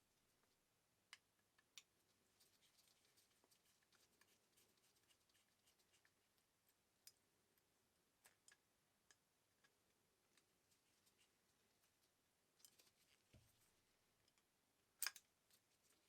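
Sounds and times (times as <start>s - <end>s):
faint small clicks: 14.2s - 16.0s.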